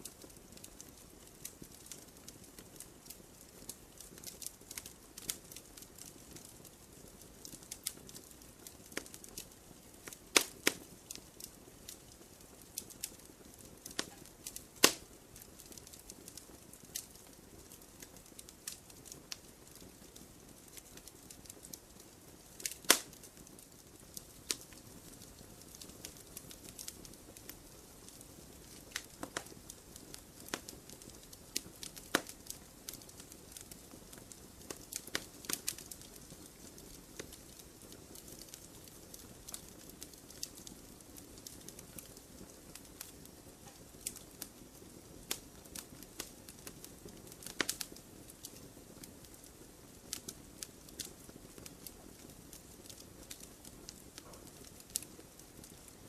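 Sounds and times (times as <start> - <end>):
campfire crackling: 0.0 - 56.0
loud fire pops: 7.4 - 48.6.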